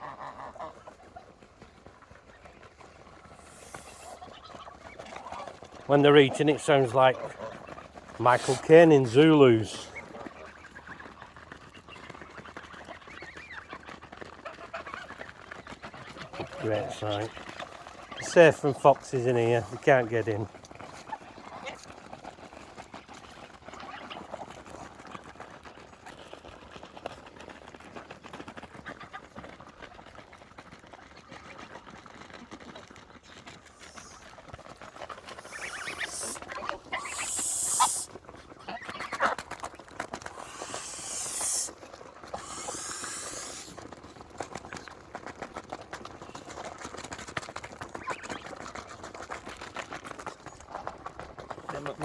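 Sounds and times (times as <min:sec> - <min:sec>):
geese bills chattering at food: 0:03.2 - 0:13.8, 0:33.6 - 0:39.5, 0:40.2 - 0:43.8.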